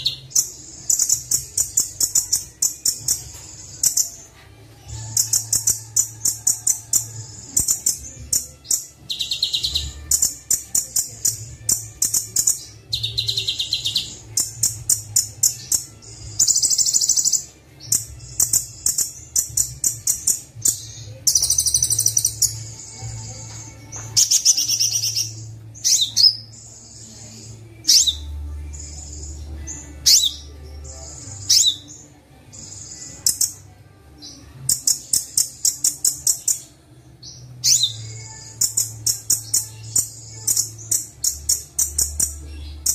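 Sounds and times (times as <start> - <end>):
sunbird trills and chirps: 5.0 - 22.7, 24.1 - 31.9.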